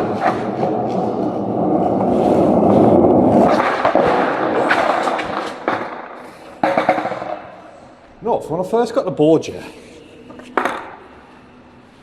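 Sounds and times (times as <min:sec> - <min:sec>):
skateboard wheels rolling on pavement: 0:00.0 - 0:07.5.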